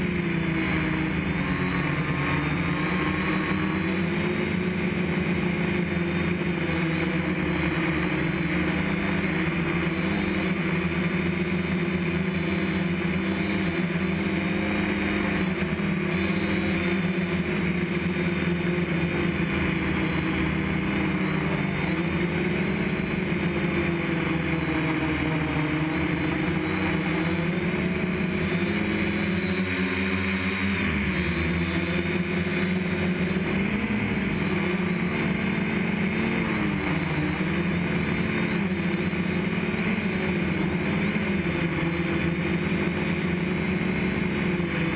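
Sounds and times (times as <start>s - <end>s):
drone propellers droning: 0.0s - 44.9s.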